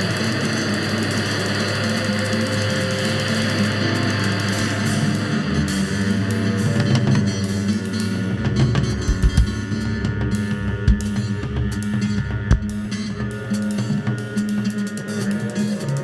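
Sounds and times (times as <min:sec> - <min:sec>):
drum kit with cymbals: 0:00.0 - 0:16.0
electric guitar: 0:00.0 - 0:16.0.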